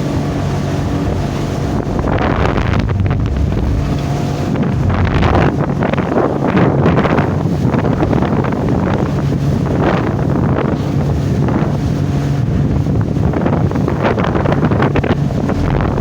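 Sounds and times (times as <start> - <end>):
steady low drone: 0.0 - 8.7
sea water rushing and splashing: 0.0 - 16.0
wind buffeting microphone: 0.0 - 16.0.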